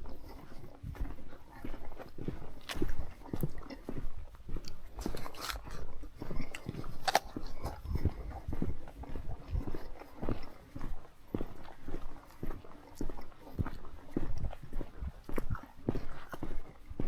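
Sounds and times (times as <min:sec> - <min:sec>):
footsteps crunching on trail: 0:00.0 - 0:17.0.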